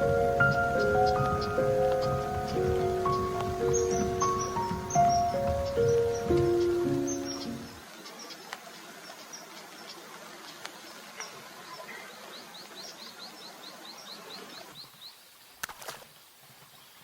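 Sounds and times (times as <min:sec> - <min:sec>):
bird chirping: 0:00.0 - 0:08.4.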